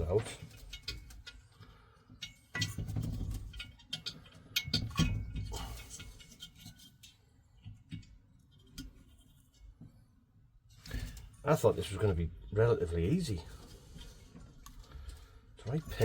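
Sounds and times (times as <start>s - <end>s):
metal parts clicking and knocking: 2.2s - 7.2s.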